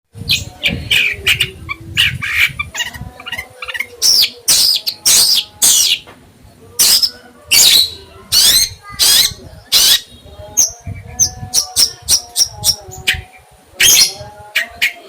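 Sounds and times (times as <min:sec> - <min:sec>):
songbird calling: 0:00.3 - 0:06.1.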